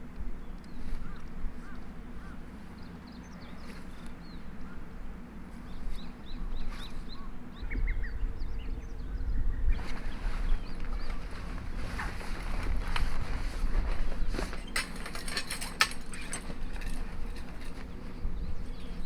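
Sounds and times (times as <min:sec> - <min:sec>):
low wind rumble: 0:00.0 - 0:19.0
small birds chirping: 0:00.0 - 0:19.0.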